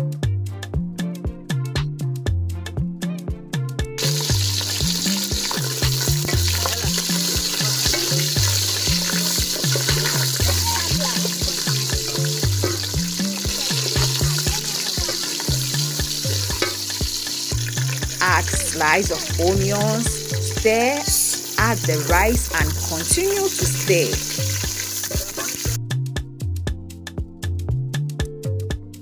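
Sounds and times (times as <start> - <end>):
background music with bassline: 0.0 - 29.0
food frying in hot oil: 4.0 - 25.8.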